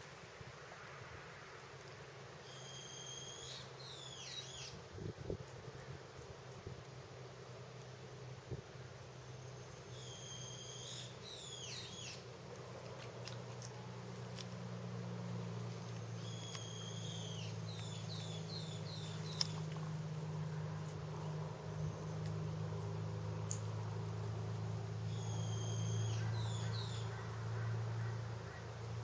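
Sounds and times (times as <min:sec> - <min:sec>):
steady low hum: 0:00.0 - 0:29.0
bird whistling call: 0:02.4 - 0:04.8, 0:09.9 - 0:12.2, 0:16.2 - 0:19.5, 0:25.1 - 0:27.1.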